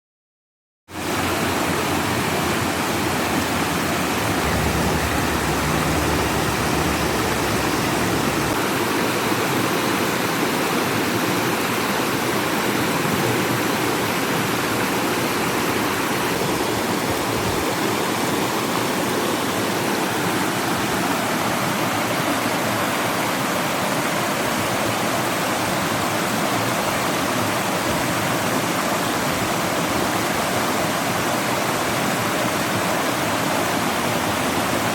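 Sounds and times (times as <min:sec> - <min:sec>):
flowing water: 0:01.0 - 0:08.7.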